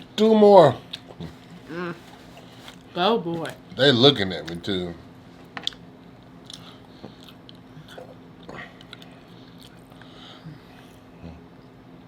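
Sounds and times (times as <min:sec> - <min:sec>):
chewing and biting taco: 0:05.6 - 0:10.0.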